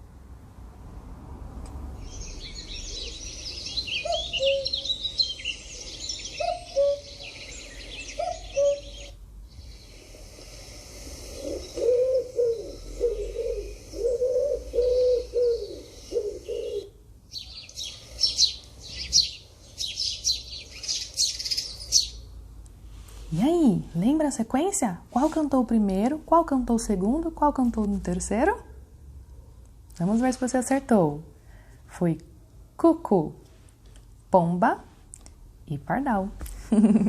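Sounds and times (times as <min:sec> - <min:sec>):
sparrows chirping: 0:02.0 - 0:22.3
small birds twittering: 0:02.0 - 0:22.4
cuckoo calling: 0:02.8 - 0:09.8, 0:11.3 - 0:22.2
pigeon cooing: 0:03.9 - 0:04.8, 0:05.6 - 0:17.0.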